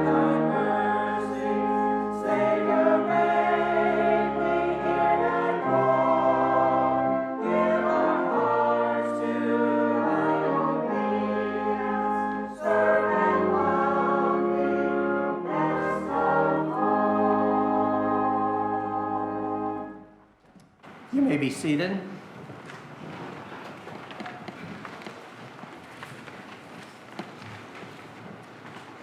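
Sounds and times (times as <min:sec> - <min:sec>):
congregation singing a hymn: 0:00.0 - 0:20.1
instrumental accompaniment: 0:00.0 - 0:20.1.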